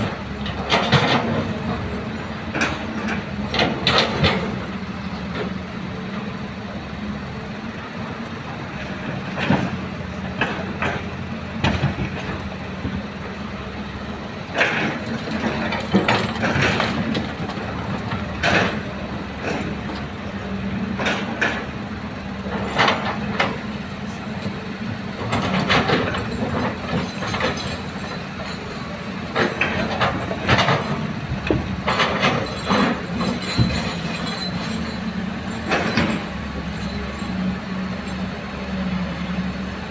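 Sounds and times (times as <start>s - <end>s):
clanks and knocks of digging: 0.0s - 4.7s, 9.2s - 13.0s, 14.5s - 20.2s, 20.9s - 21.8s, 22.4s - 37.4s
excavator diesel engine running: 0.0s - 39.9s.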